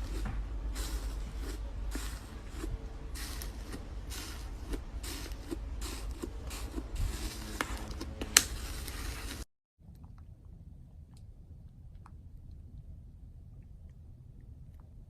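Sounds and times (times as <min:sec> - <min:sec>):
sharp crackle: 0:00.0 - 0:09.5
slime squishing: 0:00.0 - 0:10.3.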